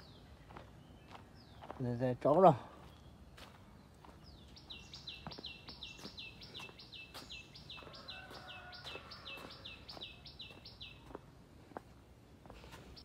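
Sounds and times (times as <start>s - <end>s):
bird calling: 4.2s - 11.2s.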